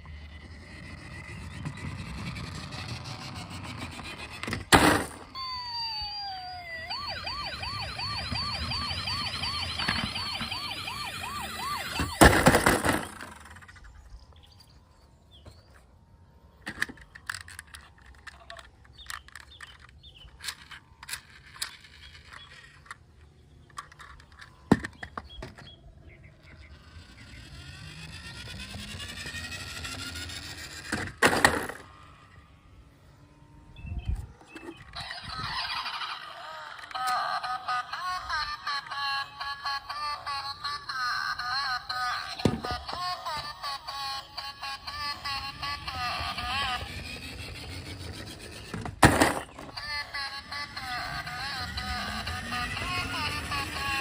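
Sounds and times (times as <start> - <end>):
toy siren wailing: 0.0 - 14.8, 17.0 - 23.0, 23.7 - 54.0
small plastic clicks: 16.6 - 25.8.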